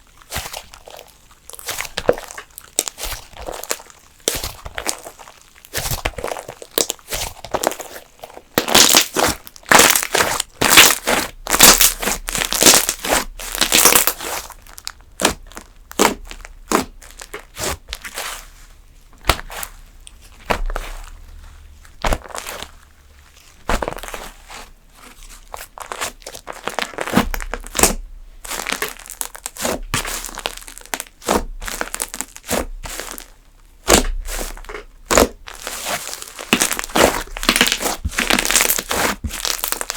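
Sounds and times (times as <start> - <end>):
slime crackling pops: 8.5 - 14.3, 33.8 - 35.5.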